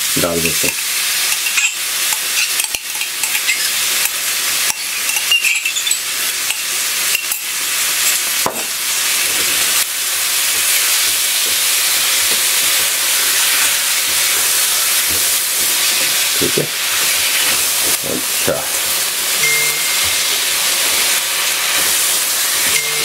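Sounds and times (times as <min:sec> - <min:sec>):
vegetables sizzling in a wok: 0:00.0 - 0:23.0
spatula scraping a pan: 0:10.4 - 0:18.0.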